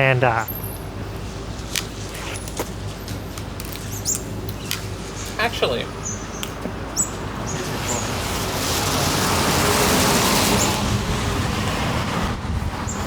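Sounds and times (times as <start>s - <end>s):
vehicle passing by: 5.0s - 13.0s.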